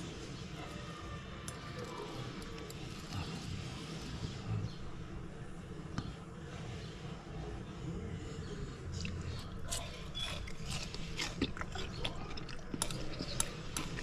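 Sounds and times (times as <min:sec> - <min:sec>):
person chewing: 0:08.8 - 0:14.0.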